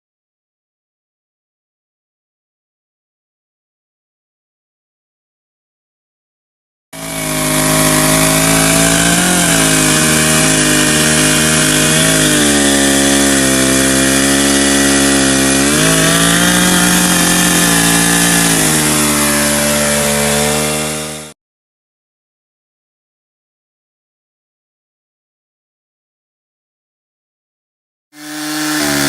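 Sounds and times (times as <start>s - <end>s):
chainsaw cutting wood: 7.0s - 21.4s, 28.2s - 29.0s.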